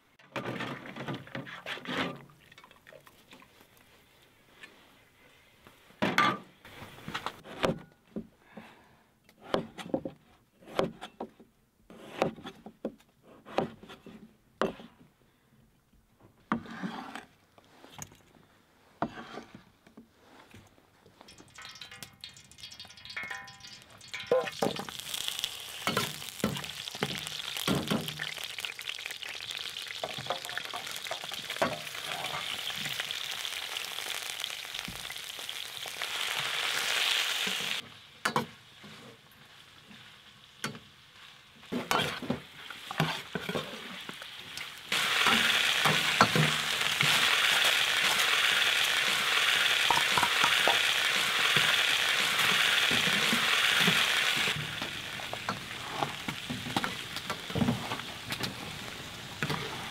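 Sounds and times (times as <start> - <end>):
metal ladle scraping wok: 21.2 - 29.0
food sizzling in hot oil: 21.2 - 59.9.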